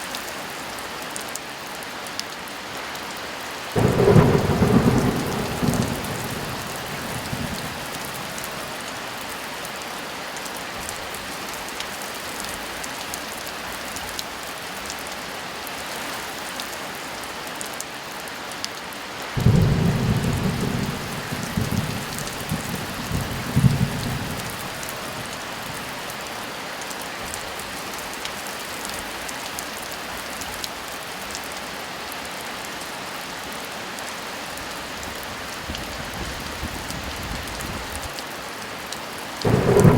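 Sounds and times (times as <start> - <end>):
heavy rain: 0.0 - 39.9
thunder rumbling: 3.8 - 9.3, 19.4 - 26.1, 39.4 - 39.9.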